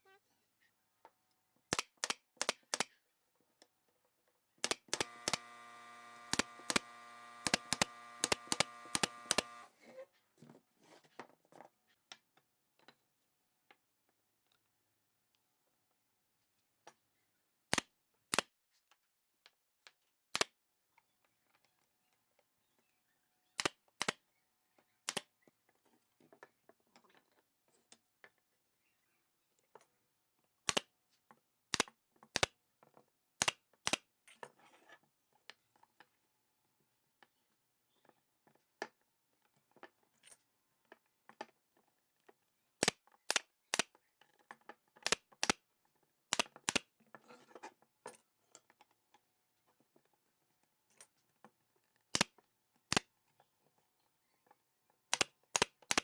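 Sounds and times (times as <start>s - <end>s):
sharp wooden clicks: 4.6s - 9.7s, 55.1s - 56.0s
faint scraping and rustling: 47.2s - 48.7s.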